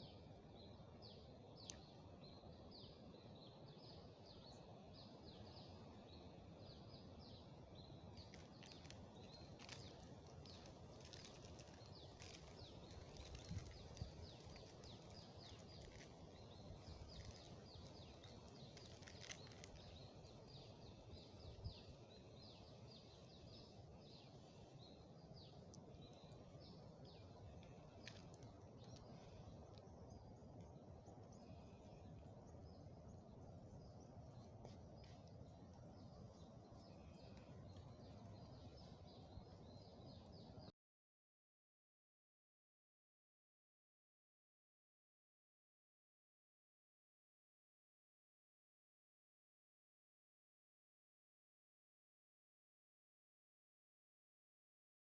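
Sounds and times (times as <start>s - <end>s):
small birds chirping: 0.0s - 40.7s.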